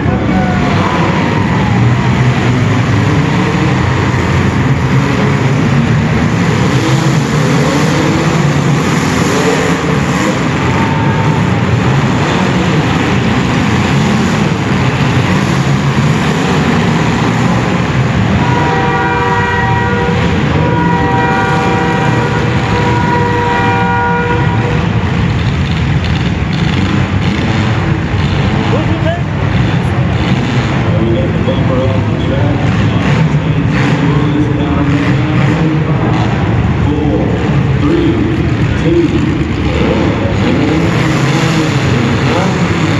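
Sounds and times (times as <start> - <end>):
car engines revving: 0.0 - 42.9
car horns honking: 6.6 - 14.0, 16.2 - 25.3.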